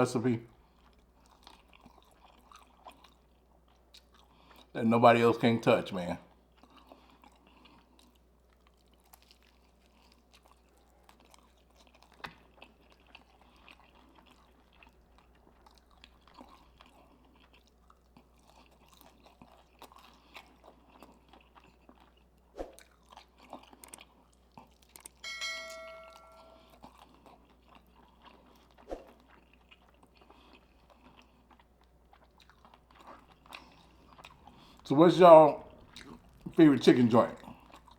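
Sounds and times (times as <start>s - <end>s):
chewing fried chicken: 0.0s - 25.3s, 26.6s - 37.9s
bell-like ding: 25.2s - 26.7s.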